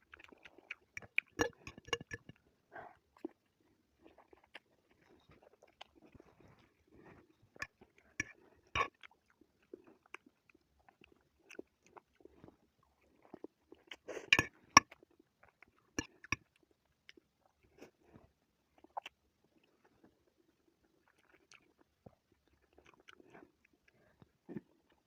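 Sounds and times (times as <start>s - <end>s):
person chewing noodles: 0.0s - 25.0s
wet mouth clicks and smacks: 0.1s - 2.4s.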